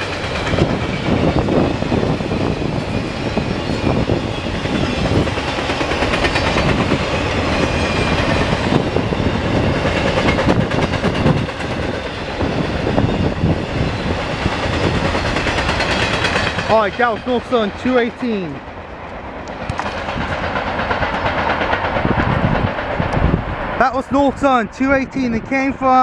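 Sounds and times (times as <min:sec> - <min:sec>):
steel wheels rumbling on rail: 0:00.0 - 0:25.8
wheels clicking over rail joints: 0:14.2 - 0:23.3.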